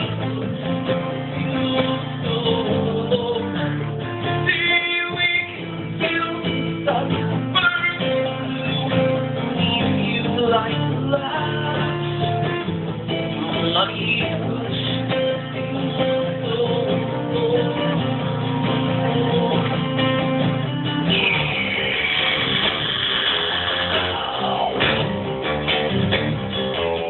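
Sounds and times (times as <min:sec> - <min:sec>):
person singing: 0:00.0 - 0:25.2
live band with guitars: 0:00.0 - 0:27.0.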